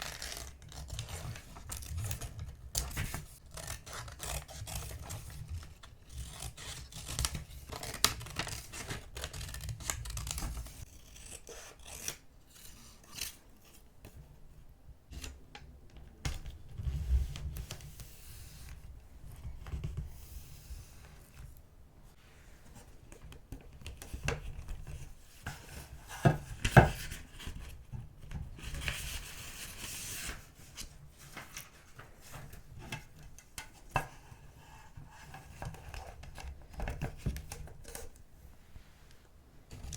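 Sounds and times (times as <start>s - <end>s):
scissors snipping paper: 0.0s - 13.4s.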